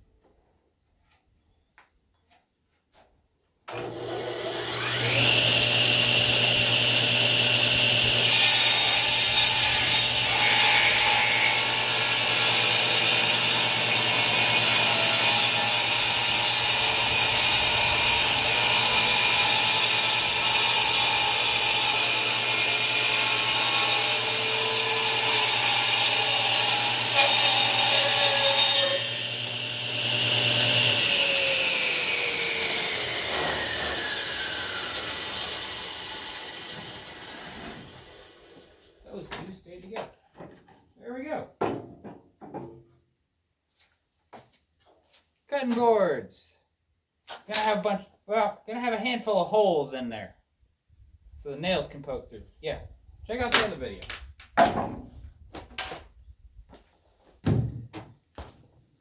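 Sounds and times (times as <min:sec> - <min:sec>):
table saw whining: 0:03.7 - 0:39.0
saw cutting through wood: 0:03.7 - 0:39.3.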